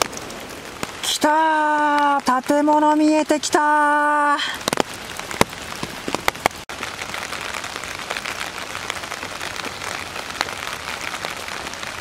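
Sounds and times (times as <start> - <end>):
single raindrop hits: 0.0 - 1.1, 4.6 - 11.4
steady rain falling: 0.0 - 12.0.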